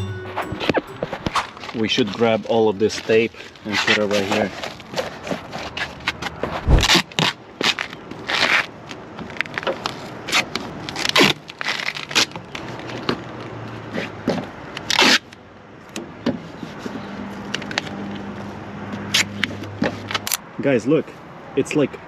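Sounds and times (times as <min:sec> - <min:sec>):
duct tape ripping off roll: 0:06.6 - 0:08.7, 0:09.3 - 0:12.6, 0:14.8 - 0:15.4.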